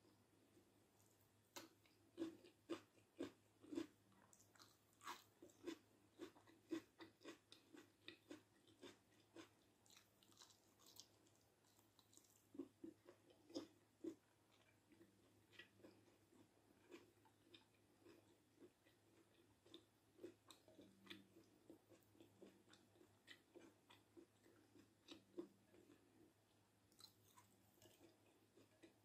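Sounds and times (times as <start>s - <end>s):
person chewing food: 1.0s - 29.0s.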